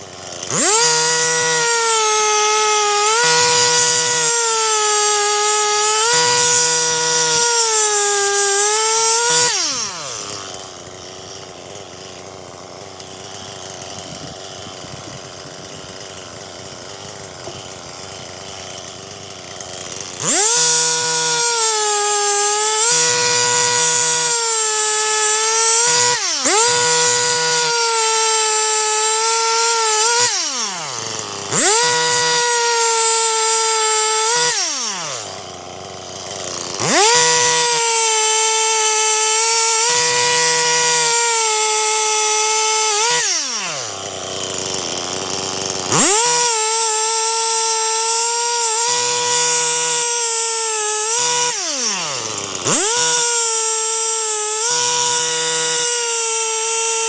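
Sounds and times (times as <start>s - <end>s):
chainsaw cutting logs: 0.0s - 57.0s.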